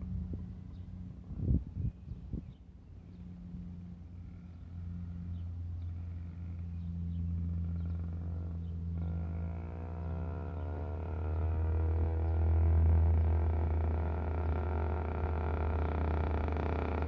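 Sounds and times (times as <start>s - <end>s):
higher engine note: 3.1s - 17.0s
motorbike engine running: 6.8s - 17.0s.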